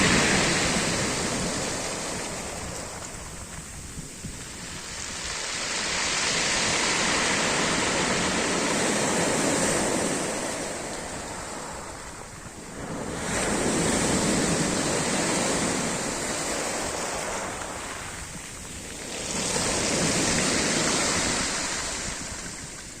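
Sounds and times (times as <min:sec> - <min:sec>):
surf breaking on shore: 0:00.0 - 0:23.0.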